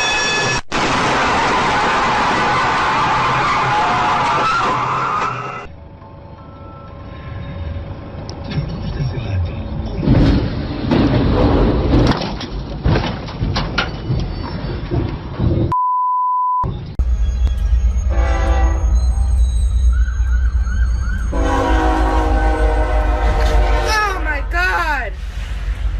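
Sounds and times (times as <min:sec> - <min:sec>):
knocks and rattling: 0:10.0 - 0:15.7
steady beep: 0:15.7 - 0:16.7
warbling siren: 0:17.0 - 0:23.1
horn blast: 0:18.1 - 0:19.1, 0:21.3 - 0:24.5.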